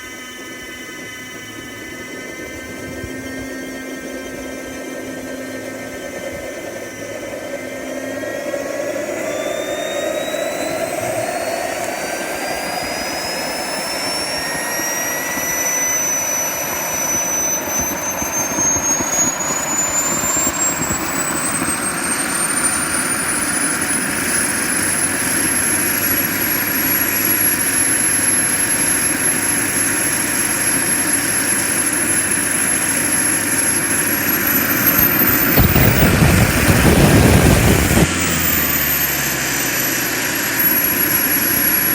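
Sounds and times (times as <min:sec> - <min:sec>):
turbine roar: 0:00.0 - 0:41.9
turbine whine spooling up: 0:00.0 - 0:41.9
loud rush of low noise: 0:34.6 - 0:39.3.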